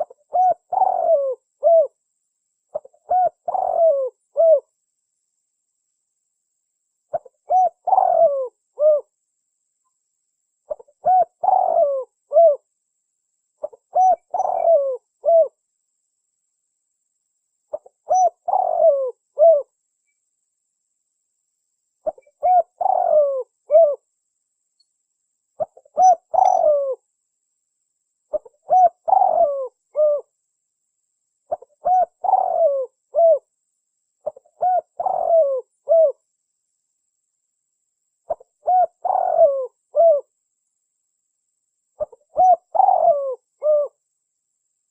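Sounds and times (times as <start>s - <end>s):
dove cooing: 0.0s - 2.0s, 2.7s - 4.7s, 7.1s - 9.1s, 10.7s - 12.7s, 13.6s - 15.6s, 17.7s - 19.7s, 22.0s - 24.0s, 25.6s - 27.0s, 28.3s - 30.3s, 31.5s - 33.5s, 34.2s - 36.2s, 38.3s - 40.3s, 42.0s - 44.0s.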